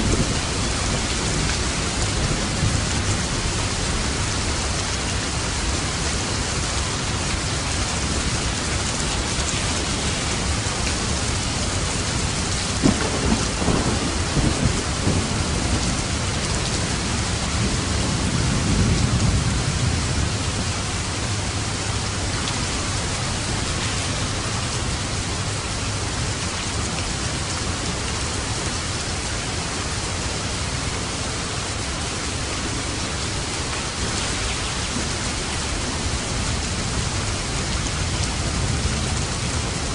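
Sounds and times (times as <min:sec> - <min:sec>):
thunder cracking and rumbling: 0:00.0 - 0:05.8, 0:10.0 - 0:25.2
heavy rain falling: 0:00.0 - 0:39.9.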